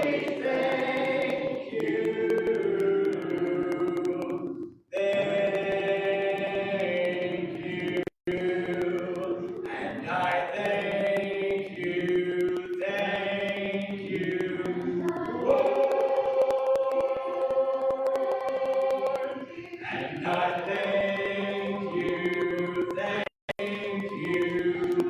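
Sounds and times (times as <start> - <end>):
congregation singing a hymn: 0.0 - 25.0.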